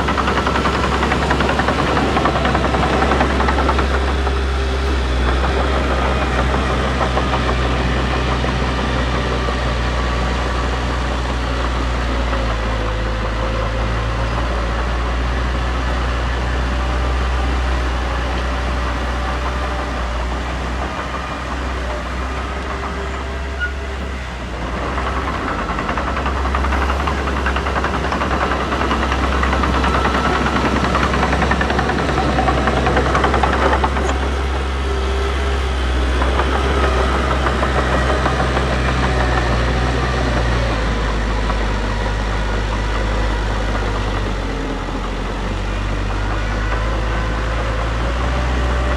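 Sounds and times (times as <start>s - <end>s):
diesel engine deep hum: 0.0s - 48.9s.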